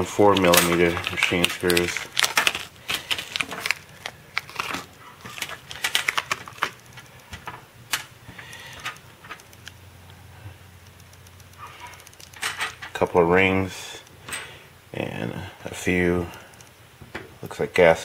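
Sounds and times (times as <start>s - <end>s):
package crinkling: 0.0s - 9.7s.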